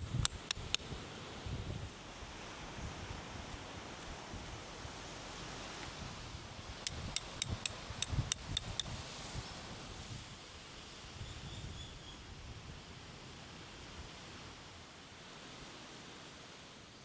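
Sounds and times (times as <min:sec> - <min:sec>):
wind noise: 0:00.0 - 0:03.6
sharp ringing clicks: 0:00.1 - 0:00.8, 0:06.9 - 0:08.8.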